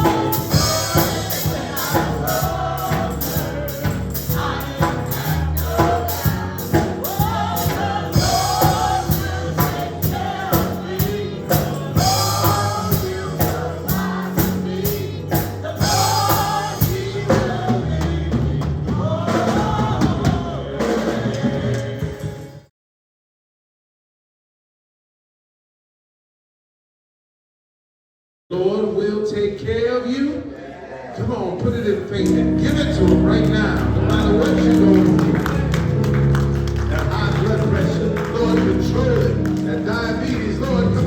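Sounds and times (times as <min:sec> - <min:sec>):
gospel singing with band: 0:00.0 - 0:22.7, 0:30.4 - 0:41.0.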